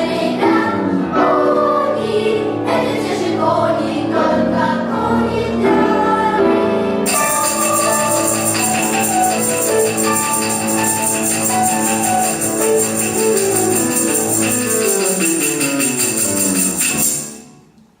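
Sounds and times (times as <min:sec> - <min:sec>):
instrumental ensemble playing: 0:07.0 - 0:17.8
shaken jingling percussion: 0:07.1 - 0:17.7.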